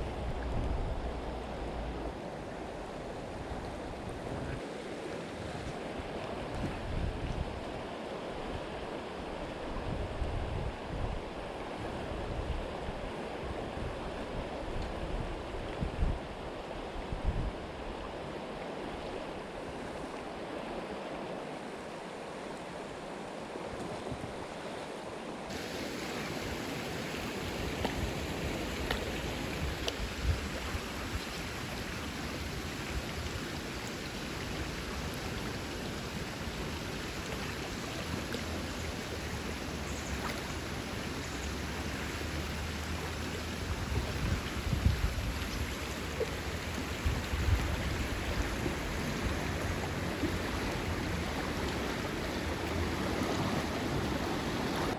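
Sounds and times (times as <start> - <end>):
creek water flowing: 0.0 - 54.9.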